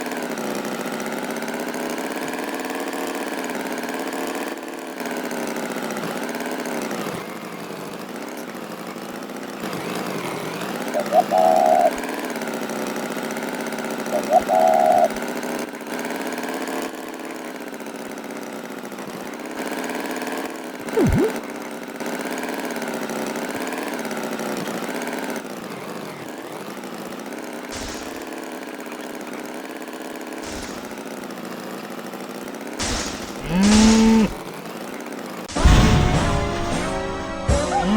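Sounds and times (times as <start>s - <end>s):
engine droning: 0.0s - 37.2s
cow mooing: 33.4s - 34.4s.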